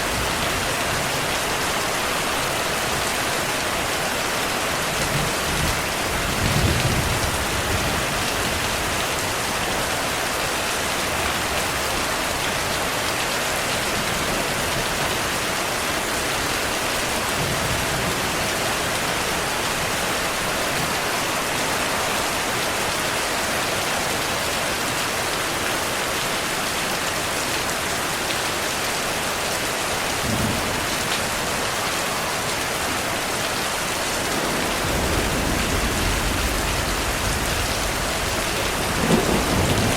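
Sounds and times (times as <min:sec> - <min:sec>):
heavy rain: 0:00.0 - 0:39.9
thunder rumbling: 0:33.8 - 0:39.9.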